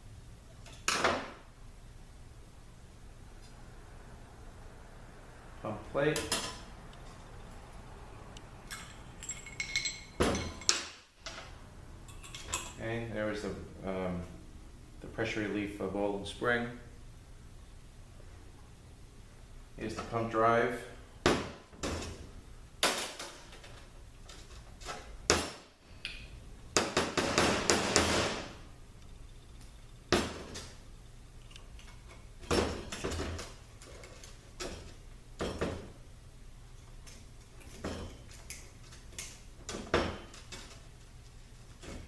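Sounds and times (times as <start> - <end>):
metal parts clinking: 8.7 - 10.9.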